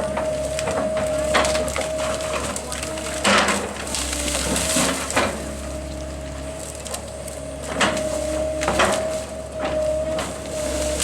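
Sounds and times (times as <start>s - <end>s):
wood cracking and splintering: 0.0s - 5.5s
machine engine hum and whine: 0.0s - 11.0s.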